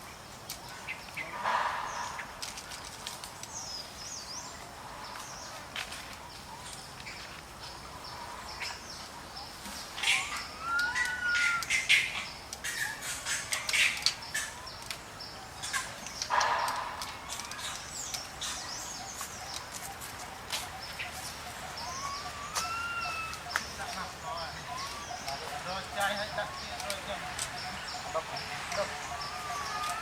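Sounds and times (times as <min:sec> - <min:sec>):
sharp clicks and crackles: 0:02.2 - 0:03.8, 0:12.5 - 0:20.7, 0:24.8 - 0:27.7
whistled animal calls: 0:10.0 - 0:12.1, 0:20.7 - 0:27.8.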